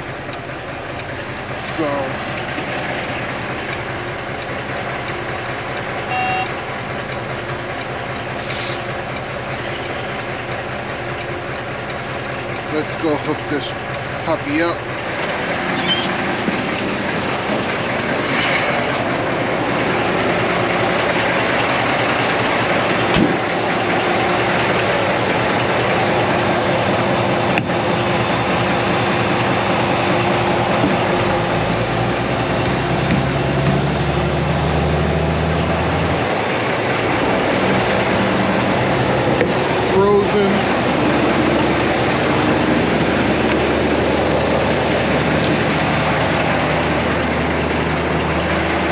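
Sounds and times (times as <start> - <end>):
diesel truck engine running: 0.0 - 48.9.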